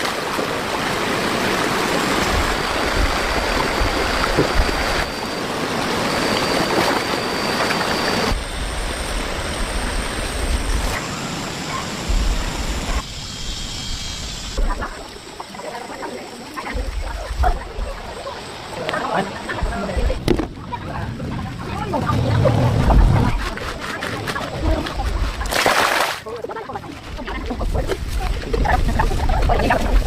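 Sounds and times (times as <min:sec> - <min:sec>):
floodwater rushing and splashing: 0:00.0 - 0:11.0, 0:14.6 - 0:30.0
low rumble: 0:19.4 - 0:25.5.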